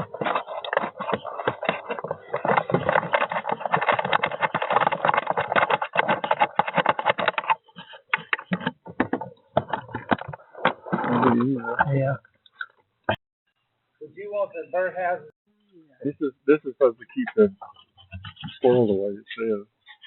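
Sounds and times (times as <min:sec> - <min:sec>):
plastic bird feeder clicking and rattling: 0:00.1 - 0:10.3.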